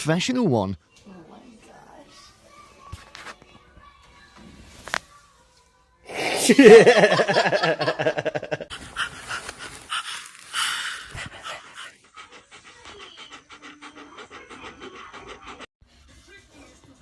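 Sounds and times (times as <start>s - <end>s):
dog panting rapidly: 8.7s - 15.7s.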